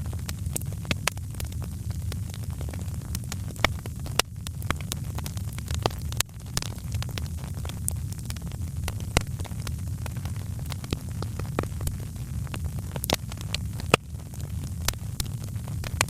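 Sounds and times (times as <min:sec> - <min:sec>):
steady low rumble: 0:00.0 - 0:16.0
wood fire crackling: 0:00.0 - 0:16.0.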